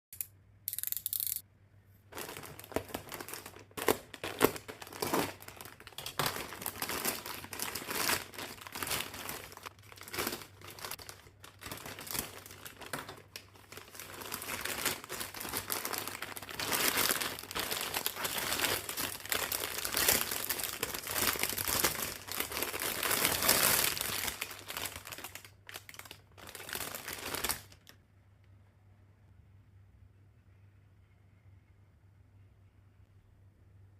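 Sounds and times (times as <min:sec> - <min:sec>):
packaging crinkling: 0:02.1 - 0:27.9.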